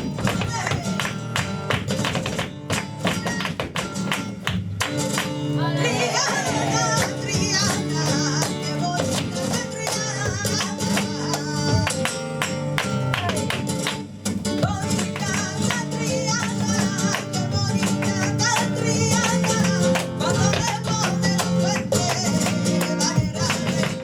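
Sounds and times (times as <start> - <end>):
flamenco guitar: 0.0 - 24.0
person singing: 5.6 - 11.9.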